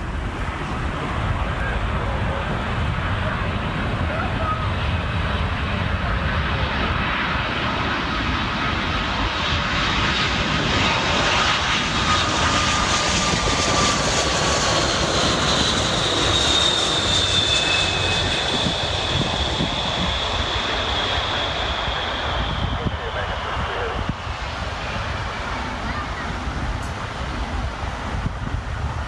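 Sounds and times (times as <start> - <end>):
jet airliner passing: 0.0 - 29.0.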